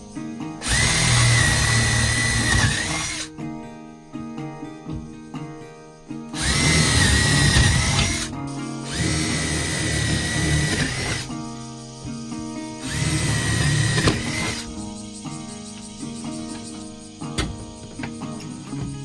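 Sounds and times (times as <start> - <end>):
background music: 0.0 - 19.0
power drill whining: 0.6 - 3.3, 6.4 - 15.0.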